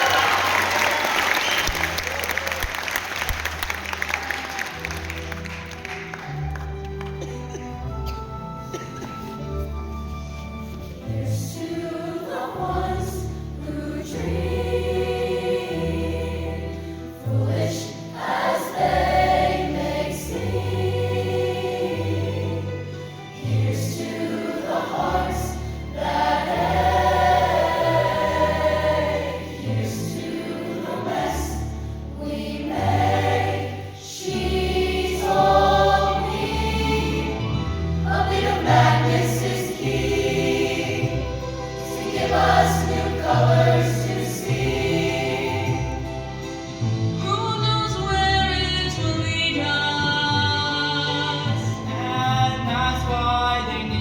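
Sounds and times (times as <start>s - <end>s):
choir singing: 10.9s - 47.3s.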